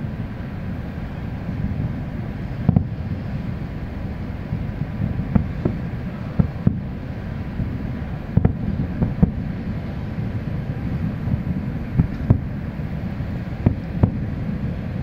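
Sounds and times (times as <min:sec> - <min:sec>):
wind rumble on microphone: 0:00.0 - 0:15.0
distant fireworks thumps: 0:02.6 - 0:03.0, 0:04.5 - 0:06.9, 0:07.6 - 0:09.4, 0:11.3 - 0:12.6, 0:13.6 - 0:14.3.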